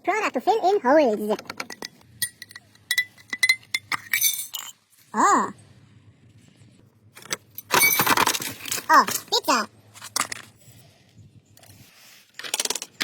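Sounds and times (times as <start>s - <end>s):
light ringing clinks: 1.7s - 4.7s.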